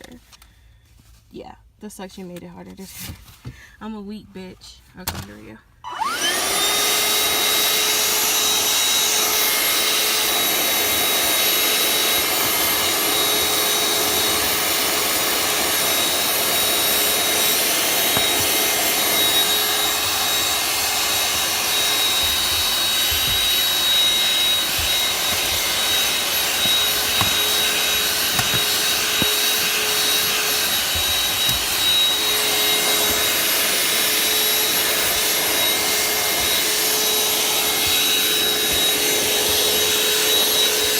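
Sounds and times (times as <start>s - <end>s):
vacuum cleaner whine and suction: 5.8s - 40.9s.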